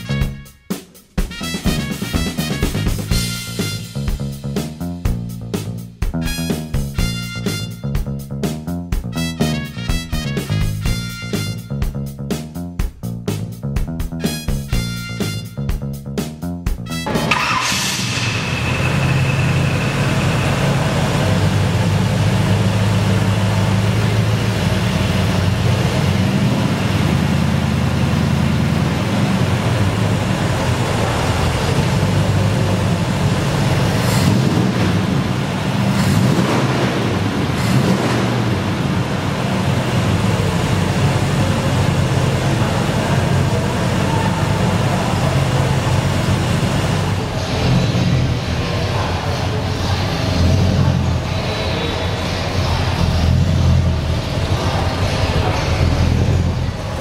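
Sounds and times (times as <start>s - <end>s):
car engine idling: 16.8s - 57.0s.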